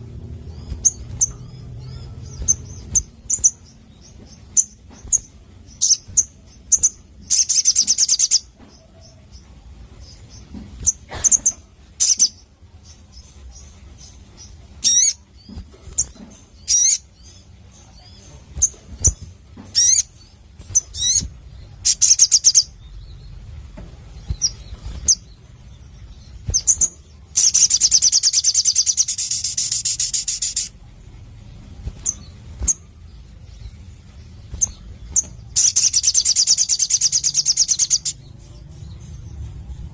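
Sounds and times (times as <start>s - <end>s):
bird singing with chirps and trills: 0.0s - 39.9s.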